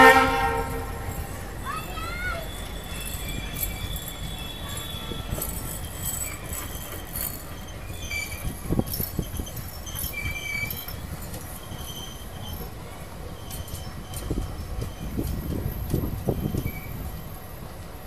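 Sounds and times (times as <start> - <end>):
high squeals: 0.0 - 11.0
train wheels rumbling on rail: 0.0 - 18.0.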